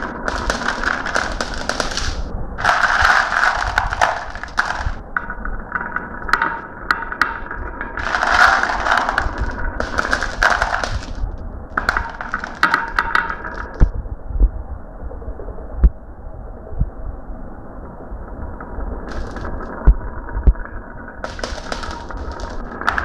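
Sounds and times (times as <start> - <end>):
marbles clattering down a run: 0.0 - 13.9, 19.1 - 19.6, 21.2 - 23.0.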